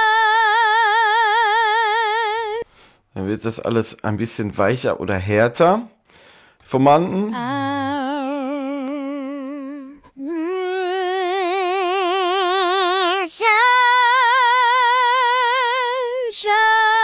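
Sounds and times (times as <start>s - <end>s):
synthesised female singing voice: 0.0s - 2.7s, 7.1s - 17.0s.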